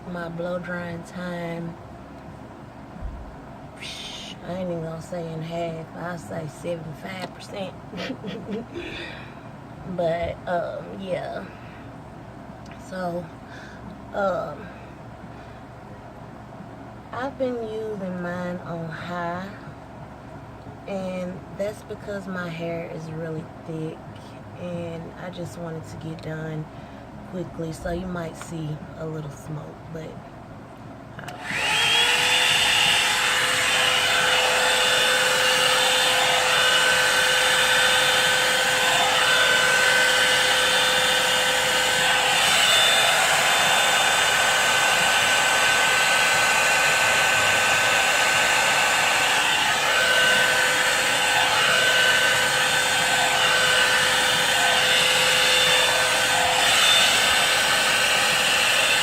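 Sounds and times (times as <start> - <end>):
blow-dryer brush whine and airflow: 0.0 - 15.3, 31.2 - 59.0.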